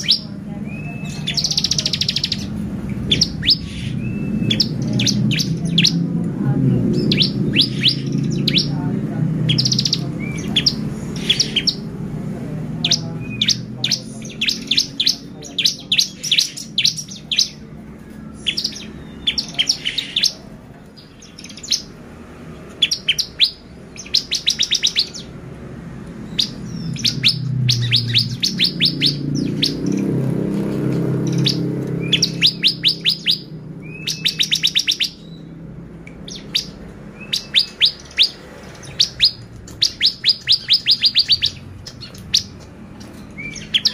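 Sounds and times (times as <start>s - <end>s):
bird singing sharp ticking notes: 0.0s - 17.7s, 18.3s - 25.4s, 26.1s - 43.9s.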